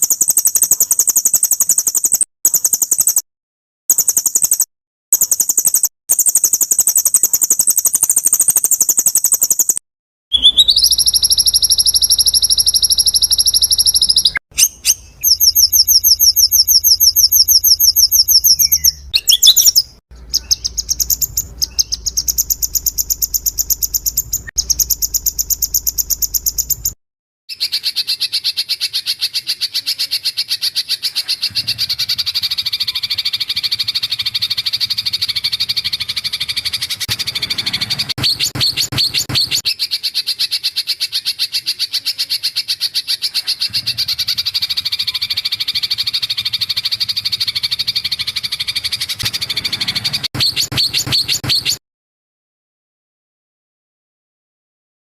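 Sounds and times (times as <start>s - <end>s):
high-pitched pulsed bird trill: 0.0s - 3.2s, 3.9s - 27.0s, 31.3s - 41.1s, 42.9s - 51.8s
low buzzy rapid trill: 20.2s - 27.0s.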